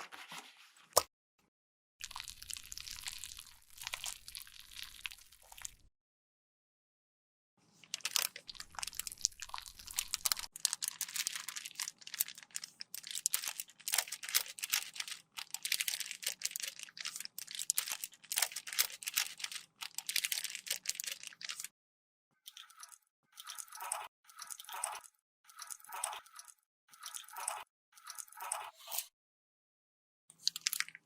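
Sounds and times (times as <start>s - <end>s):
cosmetic product crunching and crackling: 2.0s - 5.9s, 7.9s - 21.7s.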